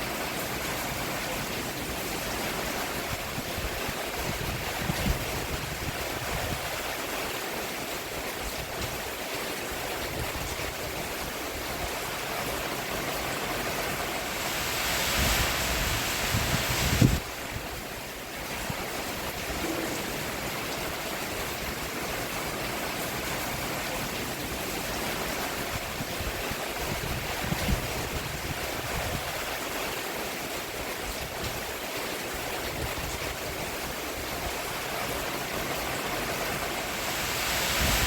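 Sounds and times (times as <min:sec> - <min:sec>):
rain on a roof: 0:00.0 - 0:38.0.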